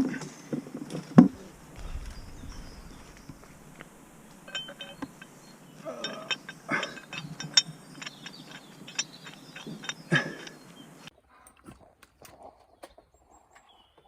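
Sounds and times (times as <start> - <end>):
metallic clicks and clinks: 1.4 - 10.7.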